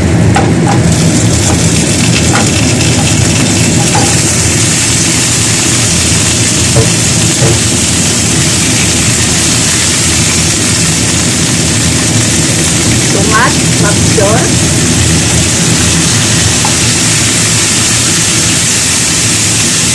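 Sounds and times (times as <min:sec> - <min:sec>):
food sizzling in a pan: 0:00.0 - 0:19.9
utensil tapping: 0:00.4 - 0:04.4, 0:06.7 - 0:07.8.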